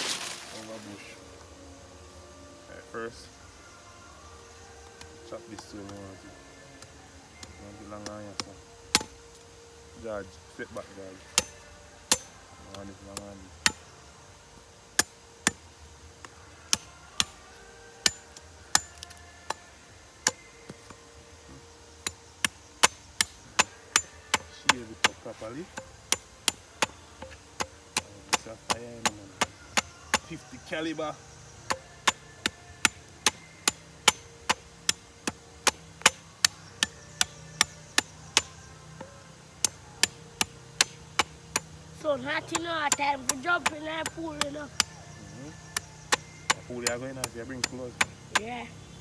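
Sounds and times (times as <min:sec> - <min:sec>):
blade chopping wooden stick: 0:06.8 - 0:09.2, 0:11.4 - 0:13.8, 0:22.0 - 0:31.0, 0:31.6 - 0:41.8, 0:45.7 - 0:48.6.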